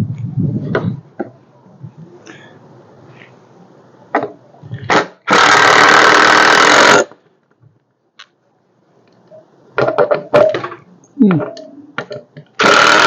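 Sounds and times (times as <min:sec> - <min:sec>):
power tool running: 0:12.6 - 0:13.0.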